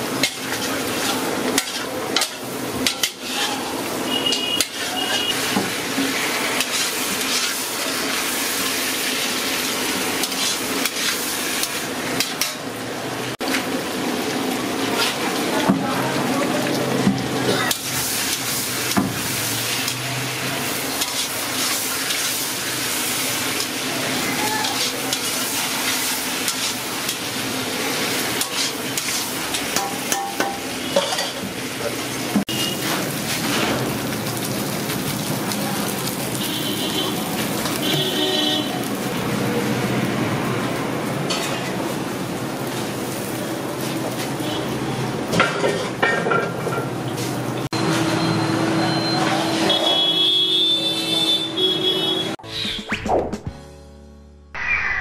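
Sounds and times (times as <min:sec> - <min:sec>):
chicken sizzling in hot oil: 0:00.0 - 0:51.4
metal spatula scraping a pan: 0:00.2 - 0:08.4, 0:09.9 - 0:12.6, 0:15.0 - 0:15.2, 0:20.9 - 0:23.8, 0:24.4 - 0:27.4, 0:28.0 - 0:31.4.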